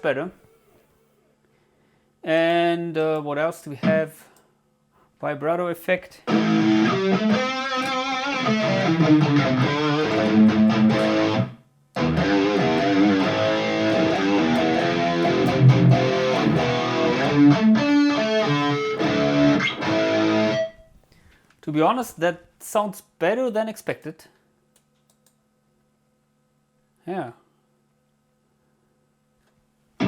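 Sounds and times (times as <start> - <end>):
electric guitar with vibrato: 6.3 - 20.9.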